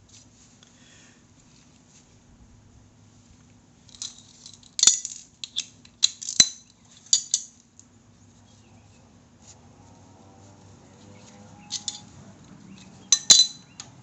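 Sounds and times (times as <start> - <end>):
faint low hum: 0.0 - 14.0
metal tools clinking: 3.9 - 7.6, 11.2 - 13.9.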